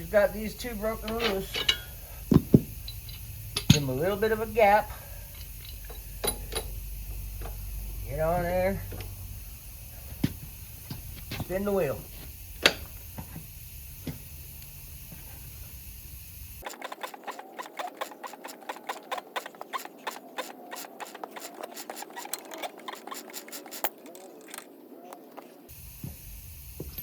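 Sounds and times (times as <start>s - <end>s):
sharp metal click: 16.6s - 25.2s.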